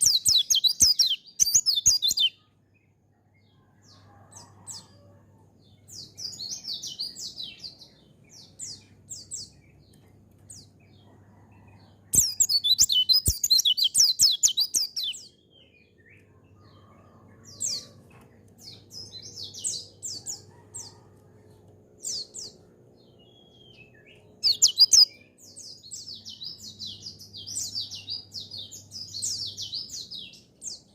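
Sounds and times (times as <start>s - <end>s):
bird chattering song: 0.0s - 2.6s, 11.8s - 16.3s, 22.0s - 30.9s.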